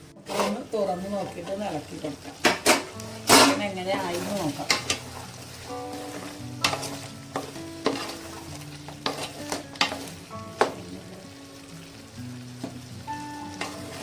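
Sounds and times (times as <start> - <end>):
sizzling in a pan: 0.0 - 14.0
spoon scraping a pot: 0.3 - 0.6, 5.9 - 8.4, 9.0 - 10.1.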